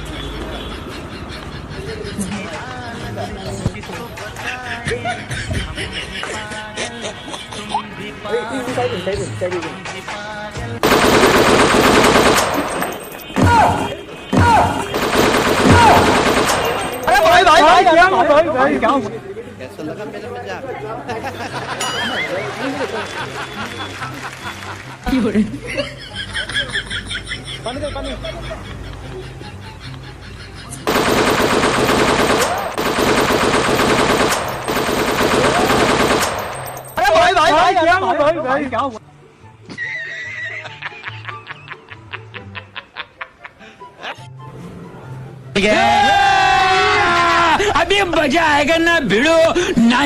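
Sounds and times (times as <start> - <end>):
machine-gun rattle: 10.8 - 13.2, 15.0 - 17.3, 30.9 - 37.0.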